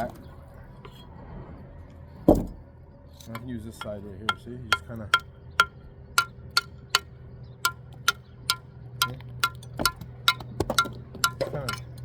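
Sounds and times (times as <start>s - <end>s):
tool tapping on brick: 3.3s - 12.0s.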